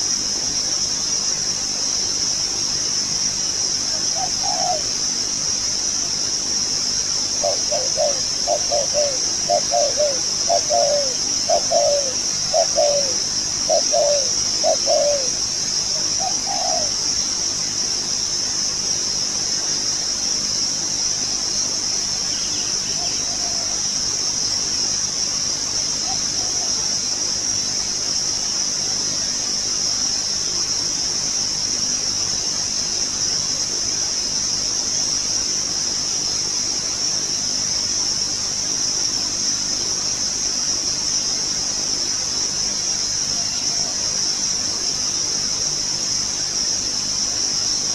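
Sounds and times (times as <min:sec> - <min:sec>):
insect drone: 0:00.0 - 0:47.9
dove cooing: 0:03.9 - 0:05.0, 0:07.4 - 0:17.0, 0:22.9 - 0:23.8, 0:26.0 - 0:26.8.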